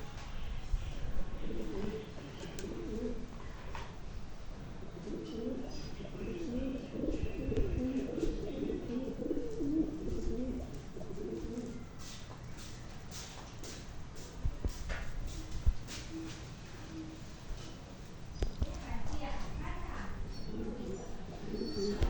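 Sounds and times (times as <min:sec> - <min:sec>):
pigeons cooing: 0:01.3 - 0:03.6, 0:04.8 - 0:12.1, 0:15.3 - 0:17.8, 0:20.0 - 0:22.0.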